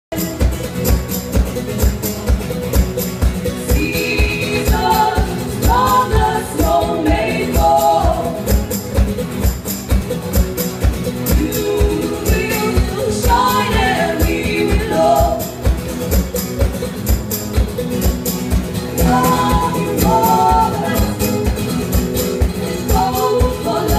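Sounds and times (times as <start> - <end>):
band music with steady beat: 0.1 - 23.9
person singing: 3.7 - 8.5, 11.3 - 15.6, 19.0 - 21.4, 22.8 - 23.9.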